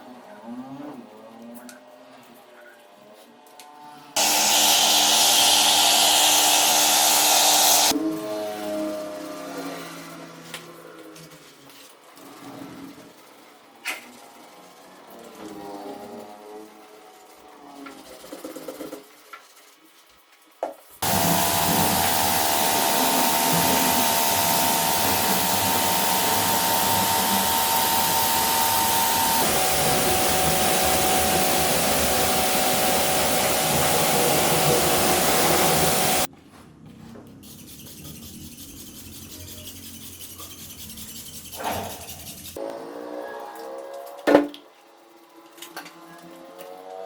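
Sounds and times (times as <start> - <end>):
compressed-air tool hissing: 4.2 - 7.9, 21.0 - 36.3.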